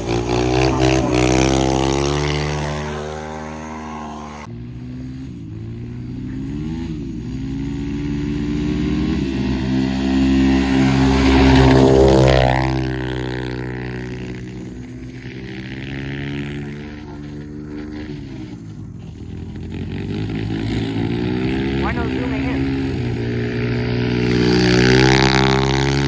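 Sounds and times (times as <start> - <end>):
off-road vehicle engine revving past: 0.0 - 26.0.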